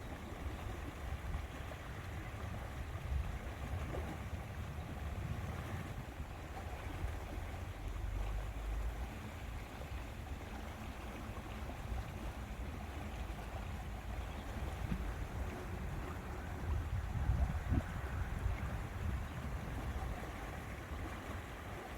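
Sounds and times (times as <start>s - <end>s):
wind buffeting microphone: 0.0s - 7.3s, 11.9s - 21.9s.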